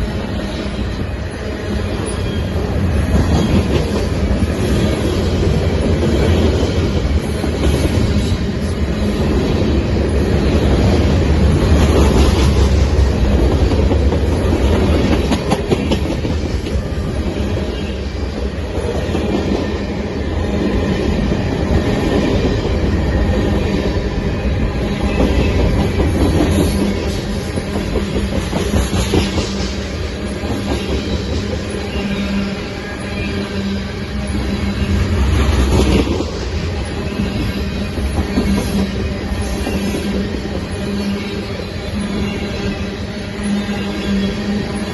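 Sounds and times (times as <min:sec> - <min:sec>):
train rumbling on rails: 0:00.0 - 0:44.9.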